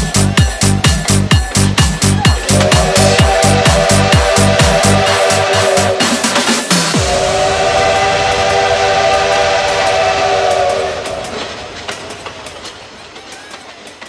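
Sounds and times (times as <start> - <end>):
falling bass sweep: 2.0 - 6.2, 6.9 - 11.4
steam locomotive whistle: 2.3 - 12.6
hiss of steam: 2.4 - 13.6.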